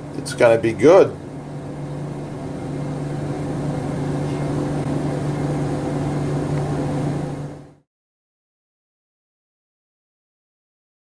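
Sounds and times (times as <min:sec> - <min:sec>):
low mechanical hum: 0:00.0 - 0:07.9.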